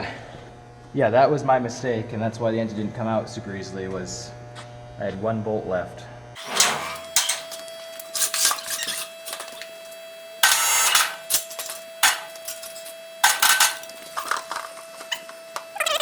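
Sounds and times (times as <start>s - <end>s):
faint steady whine: 5.6s - 16.0s
metal tools clinking and clattering: 6.4s - 9.7s, 10.4s - 14.7s.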